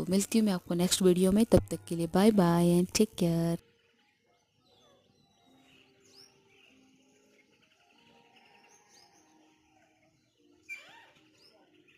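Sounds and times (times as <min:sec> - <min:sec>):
faint bird chirps: 0:03.6 - 0:11.9.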